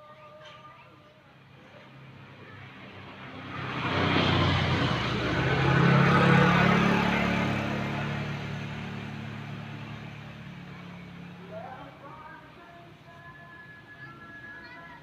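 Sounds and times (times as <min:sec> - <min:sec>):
motor vehicle passing by: 0:01.4 - 0:12.4.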